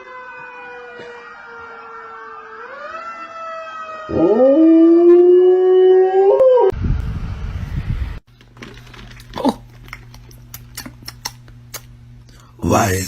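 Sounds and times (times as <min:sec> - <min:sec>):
dog howling: 0:04.1 - 0:06.7.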